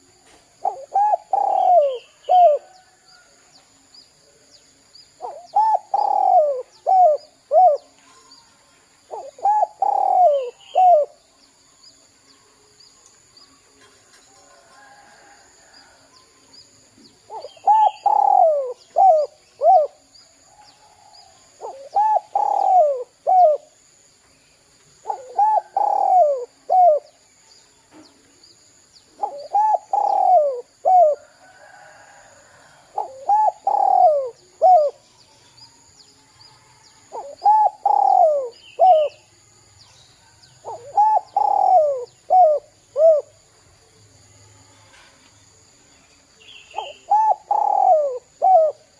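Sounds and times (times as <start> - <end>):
dove cooing: 0.6 - 2.9, 5.2 - 8.3, 9.1 - 11.2, 17.3 - 20.1, 21.6 - 23.8, 25.0 - 27.2, 29.2 - 35.0, 37.1 - 39.3, 40.6 - 43.4, 46.7 - 48.9.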